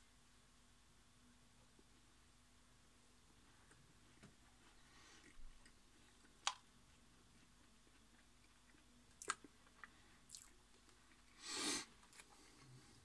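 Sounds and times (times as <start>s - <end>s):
faint chewing: 3.6s - 13.0s.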